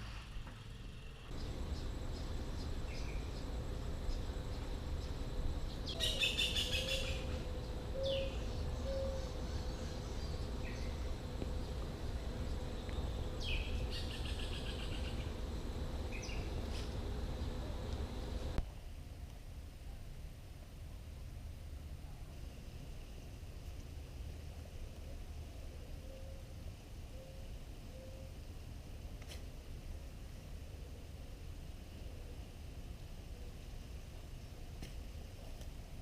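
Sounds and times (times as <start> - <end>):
steady low rumble: 0.0 - 20.3
birds trilling and chirping: 1.3 - 18.6.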